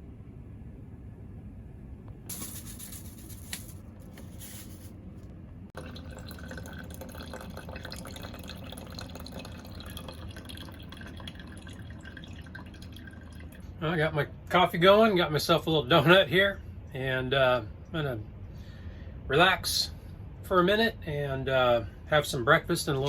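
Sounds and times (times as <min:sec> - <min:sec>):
water dripping and trickling: 0:05.8 - 0:13.7.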